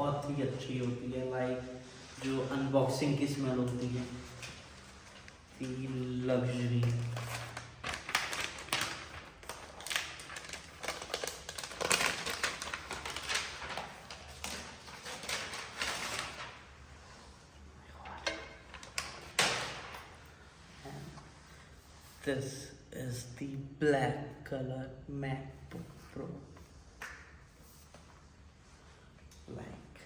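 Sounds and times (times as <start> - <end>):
paper and cardboard rustling: 2.0 - 17.4, 18.0 - 21.4.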